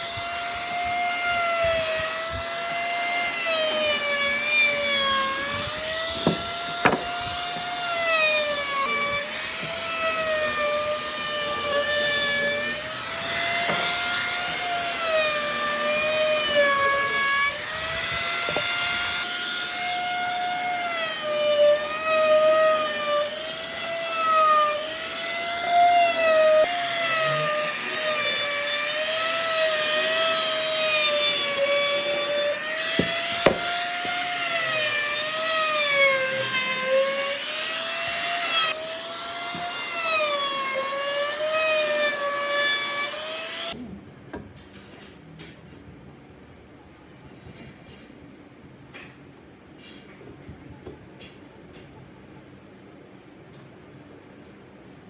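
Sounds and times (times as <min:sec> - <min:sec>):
power tool motor cutting wood: 0:00.0 - 0:43.8.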